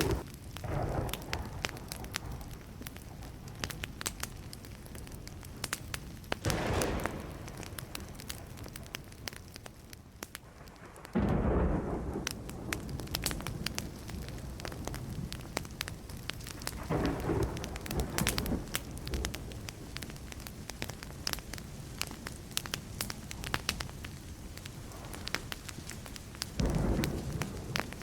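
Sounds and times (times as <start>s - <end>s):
distant thunder rumbling: 0.0s - 4.4s, 6.4s - 9.6s, 10.5s - 20.4s, 26.6s - 28.0s
wood fire crackling: 0.0s - 28.0s.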